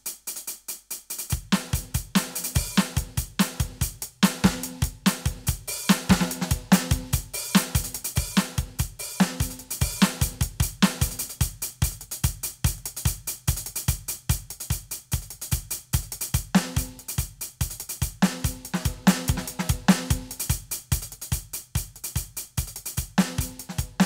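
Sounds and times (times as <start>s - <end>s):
electronic drum kit groove: 0.0s - 24.0s.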